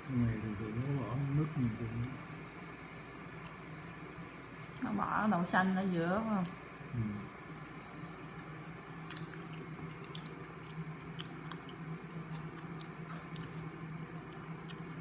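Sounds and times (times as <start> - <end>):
person chewing: 8.4 - 15.0
mouth clicks and smacks: 9.0 - 13.7.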